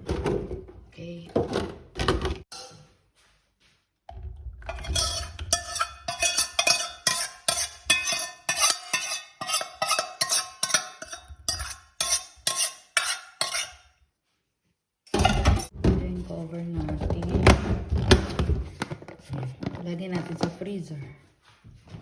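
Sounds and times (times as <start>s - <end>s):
spoon scraping and knocking a pot: 1.4s - 3.0s, 4.1s - 14.0s, 15.1s - 15.8s.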